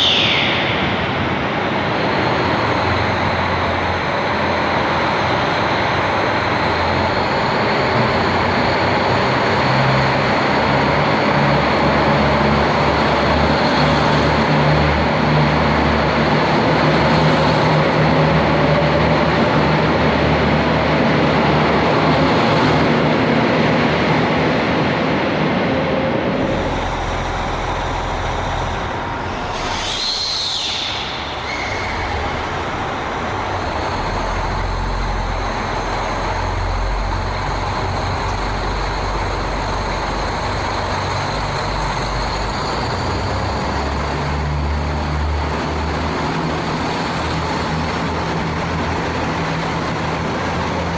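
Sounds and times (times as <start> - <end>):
high sweeping sound: 0.0 - 4.6, 23.7 - 42.8
train engine drone: 0.0 - 50.9.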